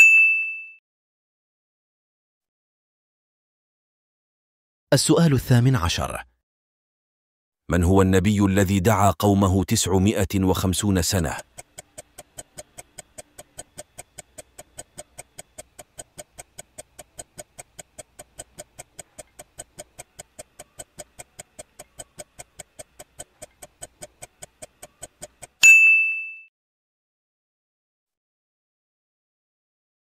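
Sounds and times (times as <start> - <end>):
bright ding: 0.0 - 0.8, 25.6 - 26.5
clock ticking: 9.6 - 25.6.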